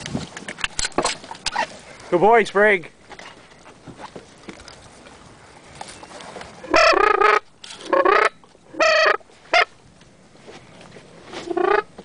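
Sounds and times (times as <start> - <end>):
duck call quacks: 6.6 - 9.7, 11.5 - 11.9.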